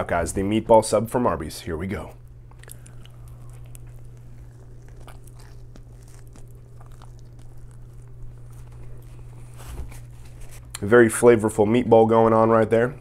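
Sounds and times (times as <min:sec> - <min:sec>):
steady low hum: 0:00.0 - 0:13.0
chewing and wet mouth clicks: 0:02.4 - 0:09.4.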